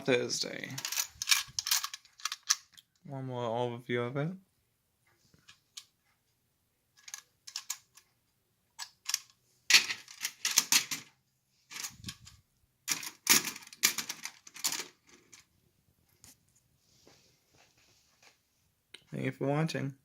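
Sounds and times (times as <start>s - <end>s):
metal toy clicking and rattling: 0.6s - 2.8s, 7.0s - 8.0s.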